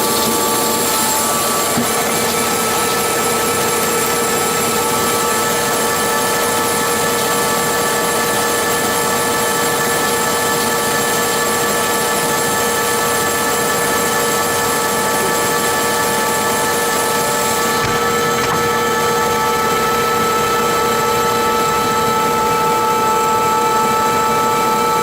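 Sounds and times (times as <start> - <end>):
helicopter engine and rotor drone: 0.0 - 25.0.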